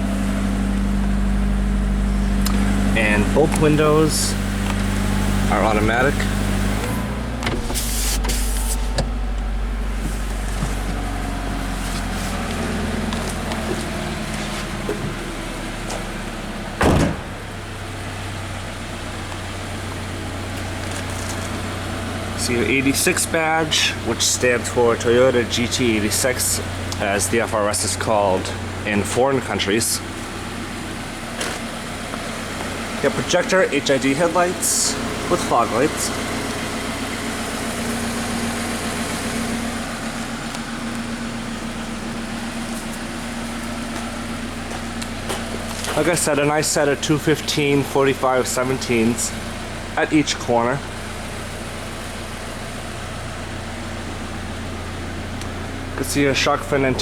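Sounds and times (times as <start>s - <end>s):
car engine idling: 0.0s - 57.0s
car door shutting: 2.2s - 16.1s, 16.7s - 17.6s.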